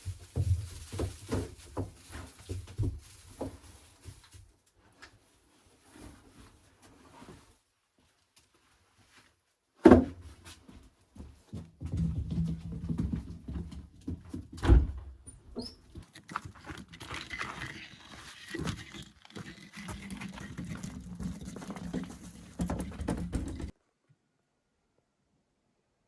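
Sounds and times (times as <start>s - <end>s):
rustling and knocking: 0.0s - 4.5s, 9.9s - 15.1s, 15.9s - 23.8s.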